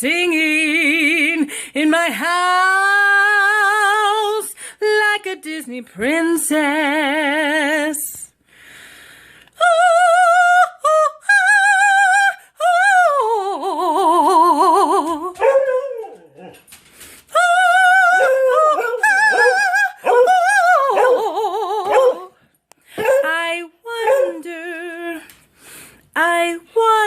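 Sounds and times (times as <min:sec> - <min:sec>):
dog howling: 0:18.0 - 0:22.3.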